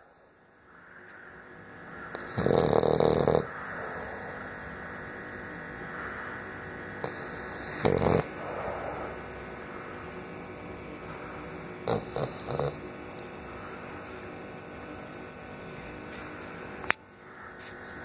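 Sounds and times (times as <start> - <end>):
dog snoring: 2.1 - 4.8, 6.9 - 10.2, 11.1 - 12.9.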